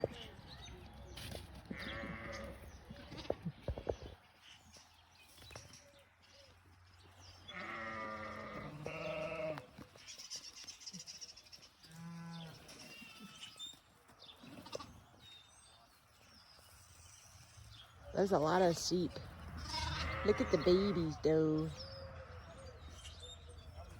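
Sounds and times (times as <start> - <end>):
sheep bleating: 1.7 - 2.6, 7.5 - 9.7, 19.6 - 21.2.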